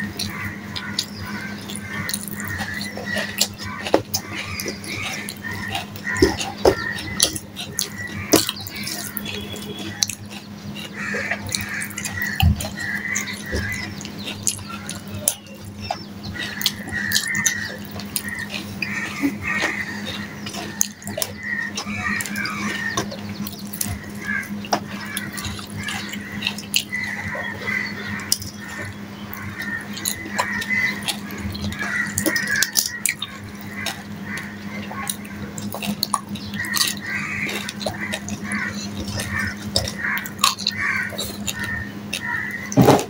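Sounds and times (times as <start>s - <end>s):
wet chewing and lip-smacking: 0.0s - 42.8s
steady low hum: 0.0s - 43.0s
small mouth clicks: 28.2s - 42.4s.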